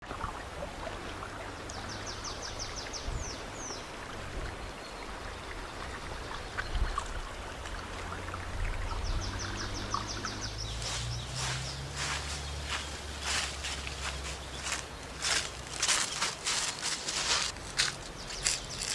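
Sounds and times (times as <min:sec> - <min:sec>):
songbird singing: 0:00.0 - 0:18.9
stream rushing: 0:00.0 - 0:18.9
rustling crunches: 0:10.8 - 0:18.9.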